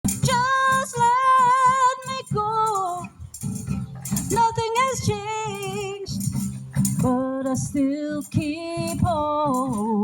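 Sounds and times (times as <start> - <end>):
woman singing with vibrato: 0.1 - 3.2, 4.2 - 10.0
accompaniment with steady beat: 2.7 - 7.2.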